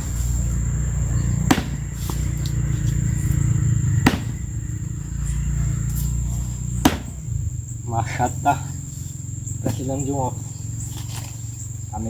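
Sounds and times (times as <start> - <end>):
axe chopping into tree trunk: 1.3 - 2.3, 4.0 - 4.6, 6.8 - 7.4.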